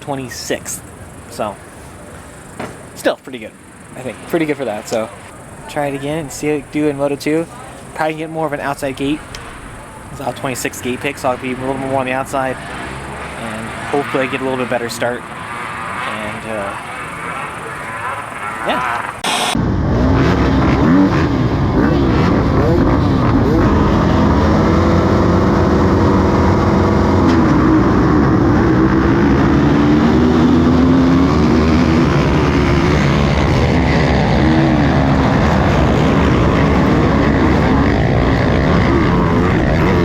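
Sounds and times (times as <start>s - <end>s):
motocross bike engines revving: 0.0s - 40.0s
heavy low rumble: 4.0s - 14.5s, 19.5s - 40.0s.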